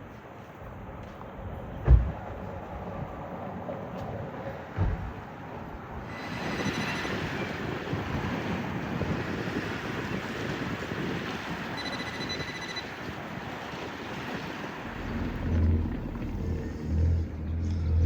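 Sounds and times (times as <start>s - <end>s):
wind buffeting microphone: 0.6s - 17.0s
sea waves: 5.7s - 17.1s
faint thin whistle: 6.1s - 7.6s, 11.8s - 12.9s
deep low rumble: 14.9s - 18.0s.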